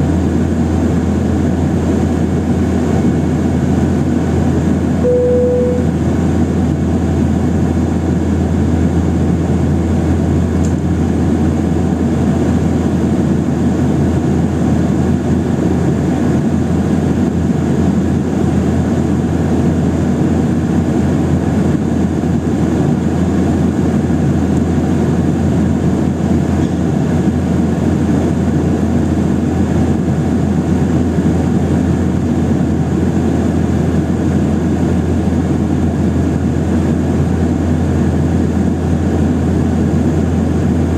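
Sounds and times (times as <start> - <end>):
airplane cabin engine drone: 0.0 - 40.9
low hum: 4.8 - 11.8.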